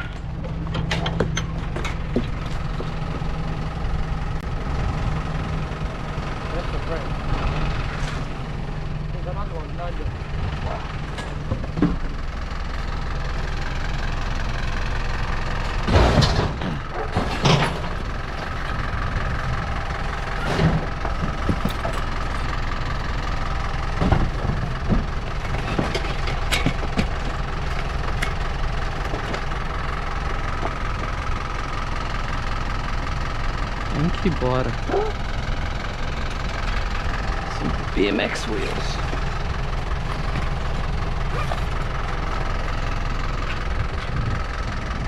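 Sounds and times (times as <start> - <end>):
scrap metal knocks and clanks: 0.0 - 3.0, 15.7 - 18.8, 20.4 - 22.6, 23.9 - 29.6
truck engine idling: 0.0 - 45.0.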